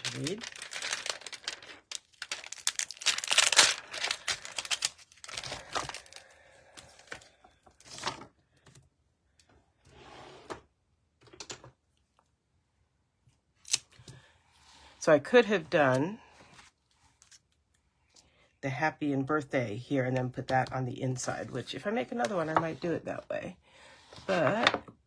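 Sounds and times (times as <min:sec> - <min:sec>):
stiff plastic crinkling: 0:00.0 - 0:06.4.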